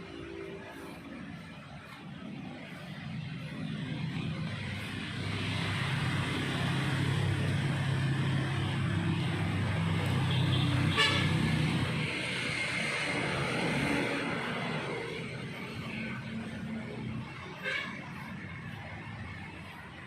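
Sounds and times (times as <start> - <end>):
heavy vehicle engine humming: 0.0 - 20.0
car horn honk: 10.3 - 11.4, 17.6 - 18.0.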